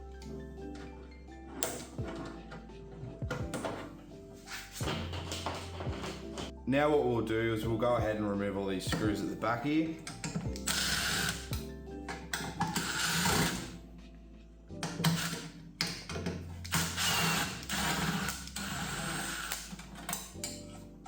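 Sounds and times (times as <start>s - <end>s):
background music: 0.0s - 21.0s
power screwdriver running: 10.6s - 11.5s, 12.7s - 13.7s, 16.7s - 19.6s.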